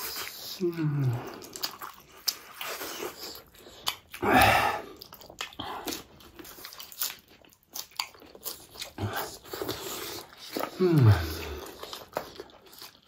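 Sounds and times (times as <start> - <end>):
chewing and biting food: 0.0 - 13.0.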